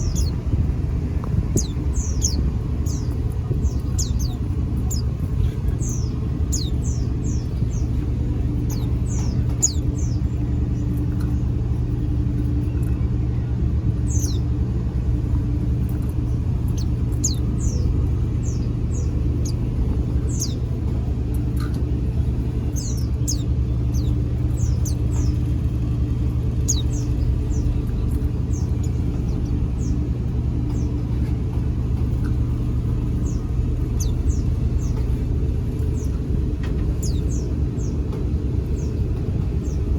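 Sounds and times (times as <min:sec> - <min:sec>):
high-pitched bird chirps: 0:00.0 - 0:00.4, 0:01.6 - 0:07.9, 0:08.6 - 0:10.2, 0:22.7 - 0:25.4
low rumble with faint hum: 0:00.0 - 0:39.9.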